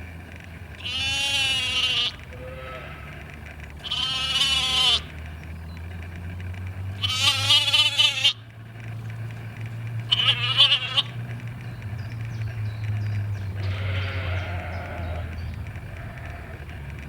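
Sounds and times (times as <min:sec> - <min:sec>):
quavering bleating: 0:00.8 - 0:05.2, 0:07.0 - 0:08.4, 0:10.1 - 0:11.2, 0:13.6 - 0:16.7.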